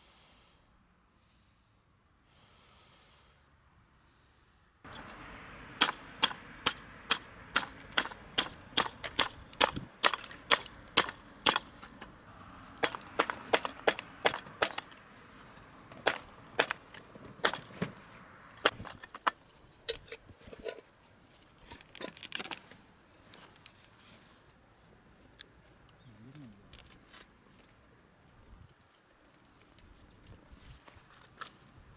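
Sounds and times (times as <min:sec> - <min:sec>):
sharp wooden knocks: 0:05.8 - 0:12.0, 0:12.8 - 0:15.0, 0:16.0 - 0:18.0, 0:18.6 - 0:19.4.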